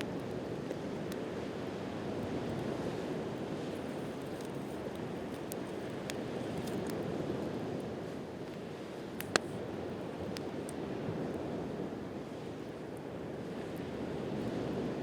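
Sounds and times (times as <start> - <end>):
campfire crackling: 0.0 - 14.2.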